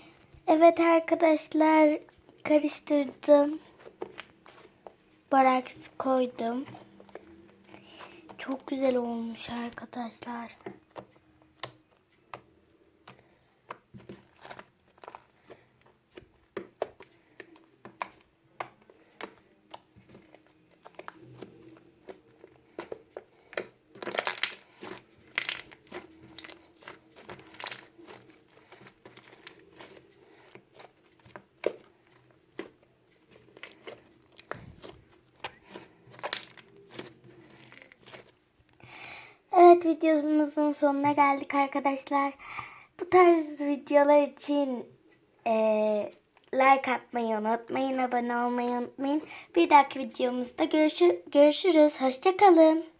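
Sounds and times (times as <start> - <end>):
slime squeezed by hand: 22.8 - 30.0.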